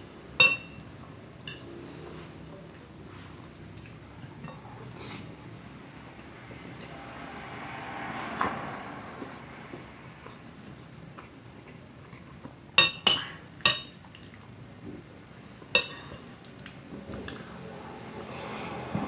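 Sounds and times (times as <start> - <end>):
cutlery clinking on plate: 0.4 - 0.8, 15.8 - 16.2.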